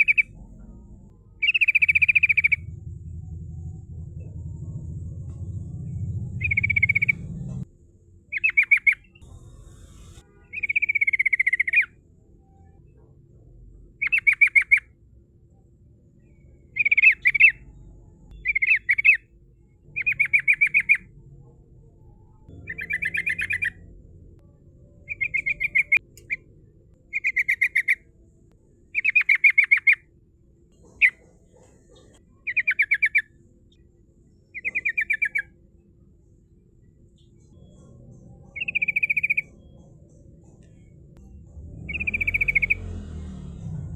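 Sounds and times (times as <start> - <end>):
bulbul chattering song: 0.0 - 7.7, 8.3 - 12.0, 14.0 - 14.9, 19.8 - 21.1, 22.5 - 28.1, 34.5 - 35.6, 37.2 - 43.1.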